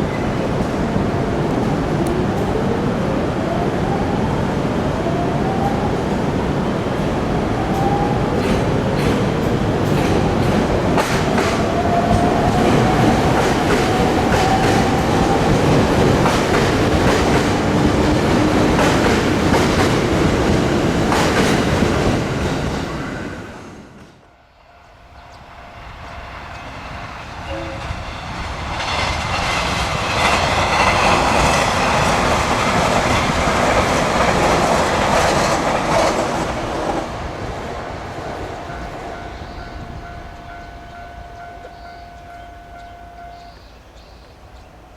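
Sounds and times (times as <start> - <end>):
train wheels clacking over rail joints: 6.9 - 22.9, 27.6 - 37.1.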